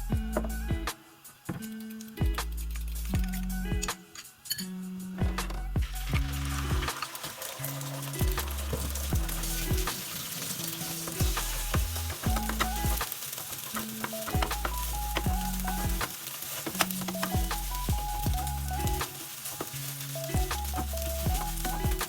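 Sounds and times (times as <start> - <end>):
background music: 0.0 - 22.0
food sizzling in a frying pan: 0.0 - 22.0
utensil stirring and clicking: 6.2 - 22.0.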